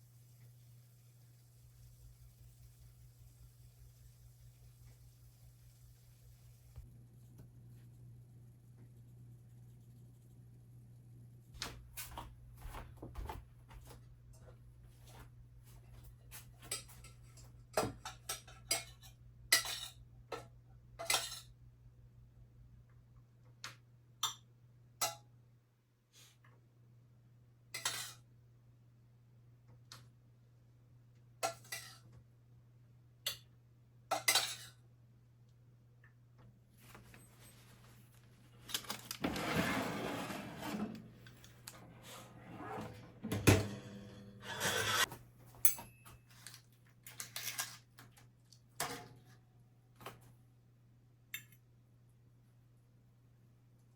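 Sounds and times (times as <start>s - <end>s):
rough scraping or rustling: 38.9s - 41.2s, 44.0s - 45.1s
kitchenware clinking and knocking: 42.6s - 46.3s.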